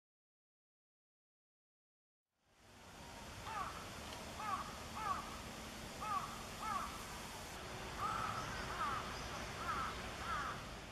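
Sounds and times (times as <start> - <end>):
bird calling: 3.4 - 5.4, 6.0 - 7.2, 7.8 - 10.9.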